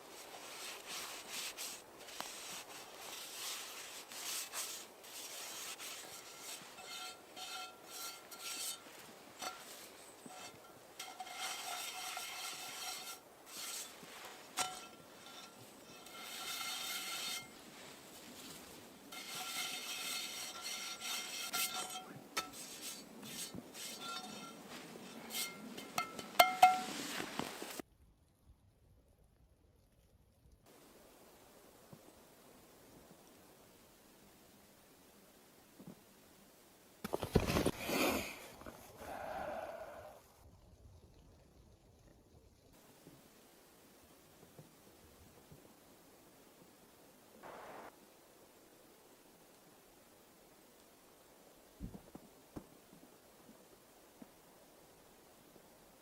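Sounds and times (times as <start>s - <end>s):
rubbing and scraping strokes: 0.0s - 27.8s.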